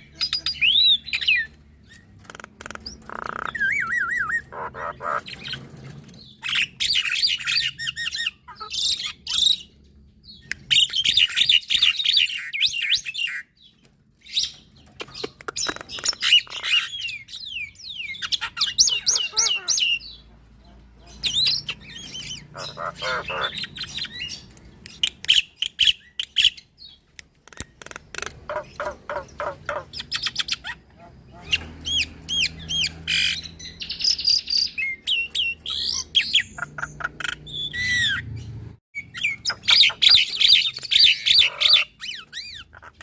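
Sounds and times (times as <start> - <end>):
birds warbling whistles and trills: 0.0 - 43.0.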